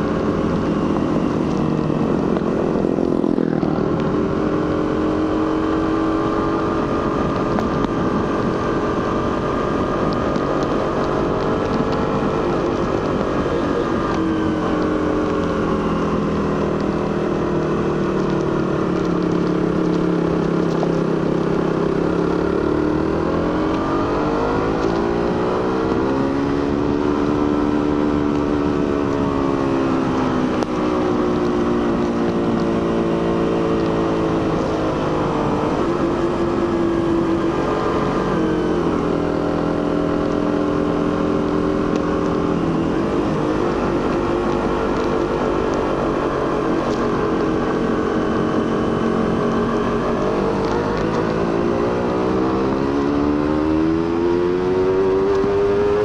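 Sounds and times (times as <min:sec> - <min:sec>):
motorcycle engine under way: 0:00.0 - 0:56.0
wind noise: 0:00.0 - 0:56.0.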